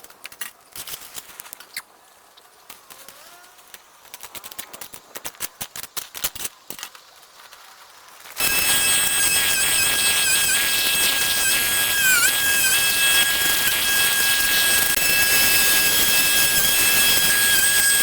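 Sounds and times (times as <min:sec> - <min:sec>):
machine hissing and whining: 0:08.4 - 0:18.0.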